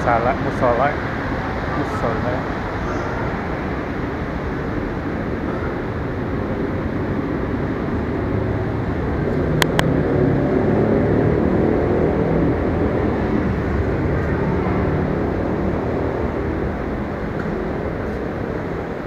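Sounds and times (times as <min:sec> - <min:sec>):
rumbling station hall noise: 0:00.0 - 0:19.0.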